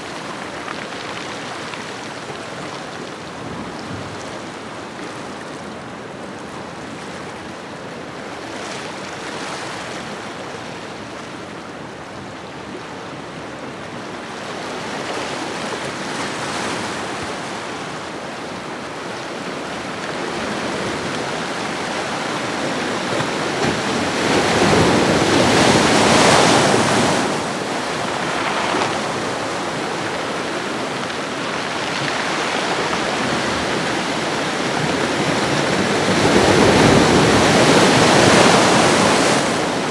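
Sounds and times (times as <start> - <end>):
ocean waves washing ashore: 14.8 - 39.9.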